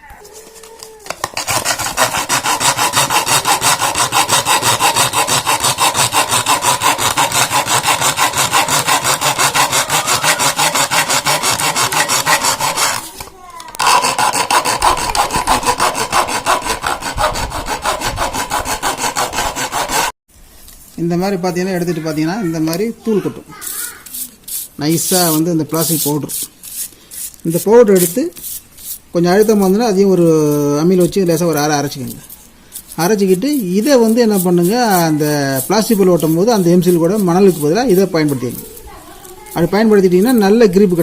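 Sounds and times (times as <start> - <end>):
hacksaw rasping on plastic: 1.1 - 20.2, 32.8 - 41.0.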